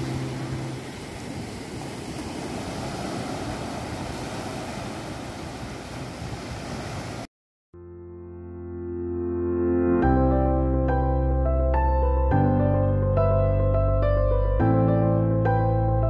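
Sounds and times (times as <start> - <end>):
soft ambient piano music: 0.0 - 0.8, 7.8 - 16.0
surf and wind on shore: 0.0 - 7.3.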